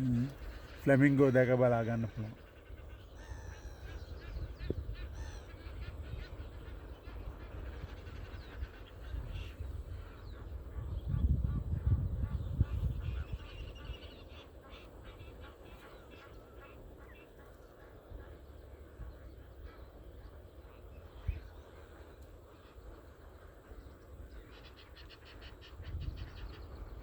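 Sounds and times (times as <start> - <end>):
flock of flamingos calling: 0.0 - 27.0.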